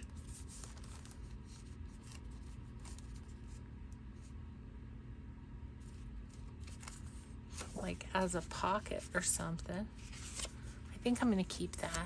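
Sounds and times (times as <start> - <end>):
paper rustling: 0.0 - 3.6, 5.8 - 10.8, 11.7 - 12.0
steady low hum: 0.0 - 12.0.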